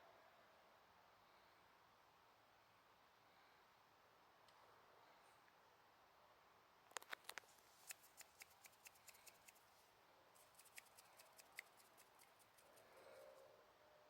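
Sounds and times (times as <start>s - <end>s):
faint sharp clicks and ticks: 6.9s - 9.7s, 10.4s - 13.5s.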